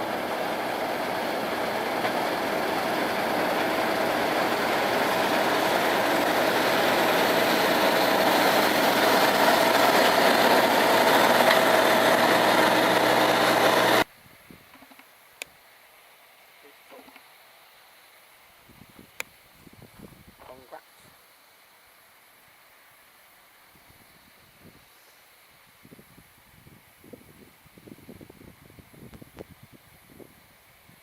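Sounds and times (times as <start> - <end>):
faint machinery whine: 0.0 - 14.1
harvest machinery diesel engine: 0.0 - 14.1.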